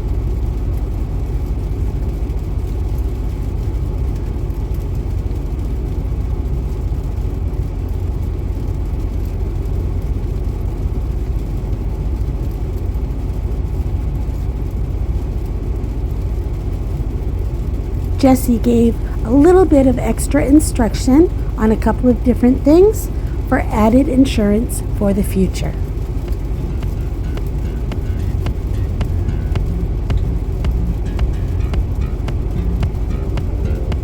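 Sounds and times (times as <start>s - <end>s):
heavy engine idling: 0.0s - 34.0s.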